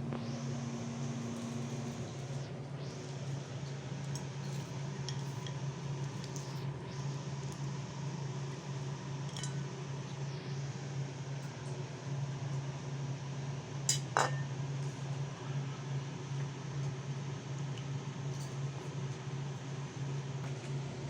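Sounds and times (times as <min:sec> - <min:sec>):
low fan hum: 0:00.0 - 0:21.0
spoon and dishes clinking: 0:13.9 - 0:14.4.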